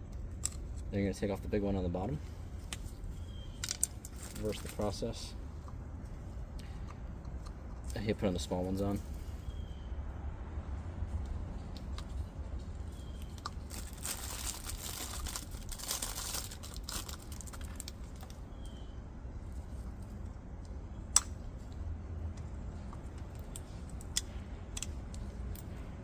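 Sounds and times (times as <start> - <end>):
crinkling and rustling handling: 0.0 - 9.6, 10.8 - 18.8.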